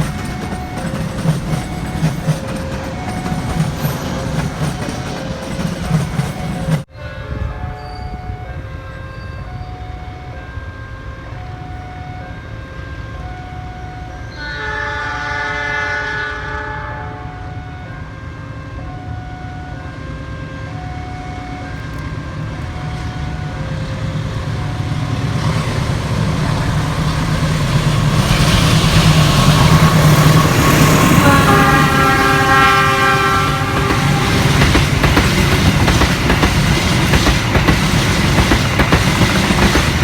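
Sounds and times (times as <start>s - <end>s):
approaching train rumble: 0.0s - 40.0s
train horn: 6.9s - 22.1s, 28.0s - 35.8s.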